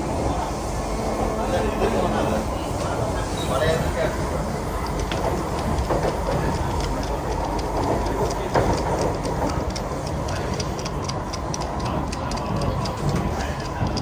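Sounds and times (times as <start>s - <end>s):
train rumbling: 0.0s - 14.0s
train bump: 1.1s - 14.0s.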